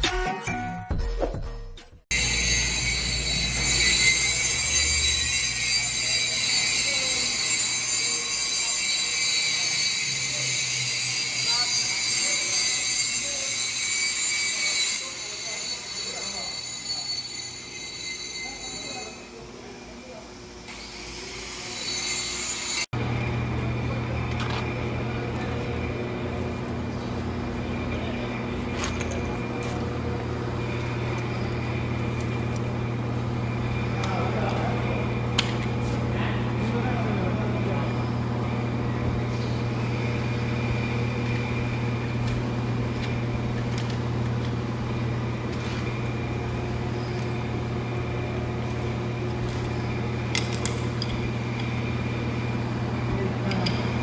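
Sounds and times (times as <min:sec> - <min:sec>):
welding machine low hum: 0:02.1 - 0:15.4, 0:23.0 - 0:54.0.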